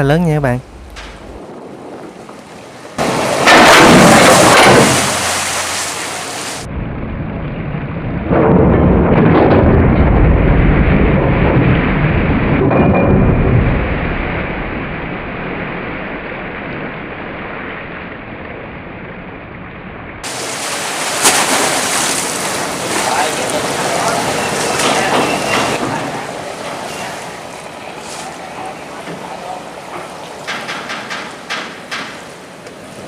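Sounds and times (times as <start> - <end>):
loud deep rumble: 0.0 - 5.5, 6.6 - 20.3
sluice gate closing: 0.6 - 6.7, 20.2 - 32.4.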